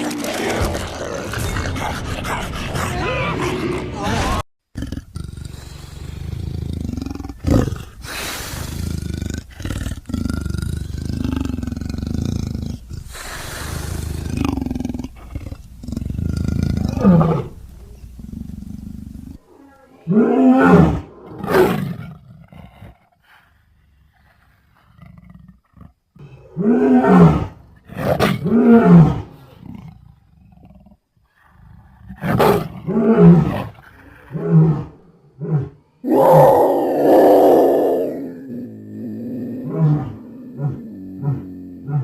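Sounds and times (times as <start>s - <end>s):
monster growling: 0.0s - 17.6s, 36.0s - 42.0s
monster roaring: 36.0s - 42.0s.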